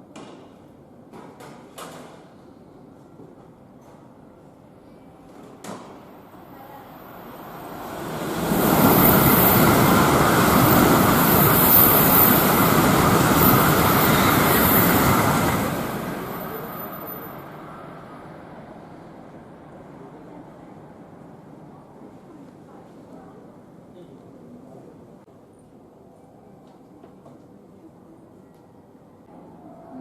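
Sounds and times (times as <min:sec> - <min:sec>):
high-speed train passing: 0:06.0 - 0:22.2.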